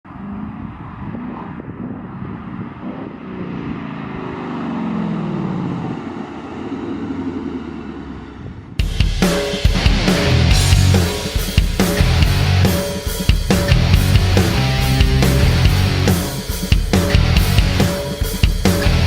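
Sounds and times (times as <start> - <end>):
car engine exhaust revving: 13.6 - 16.4.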